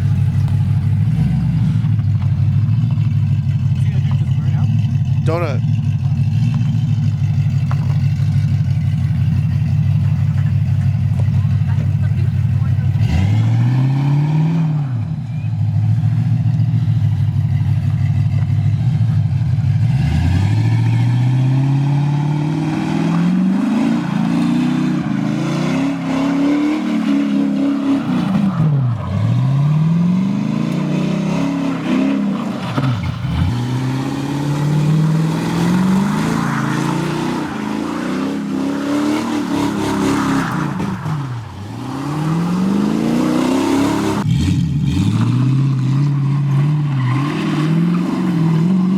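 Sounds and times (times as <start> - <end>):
car engine revving hard: 11.5 - 15.2, 18.8 - 48.9.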